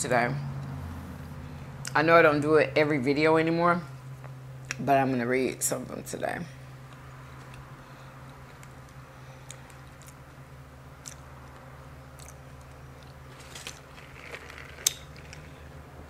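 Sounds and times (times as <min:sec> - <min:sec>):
steady low hum: 0:00.0 - 0:16.0
faint chewing and mouth clicks: 0:07.4 - 0:10.4, 0:11.0 - 0:13.2.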